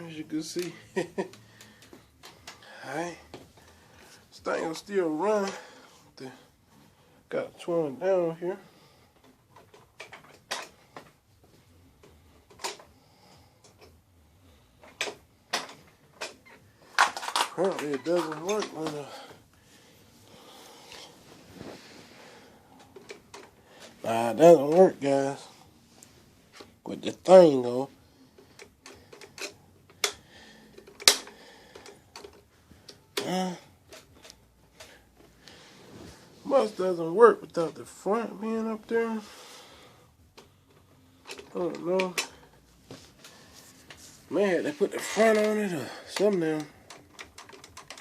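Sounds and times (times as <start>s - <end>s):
vacuum cleaner being handled: 14.8s - 19.4s, 40.3s - 48.0s.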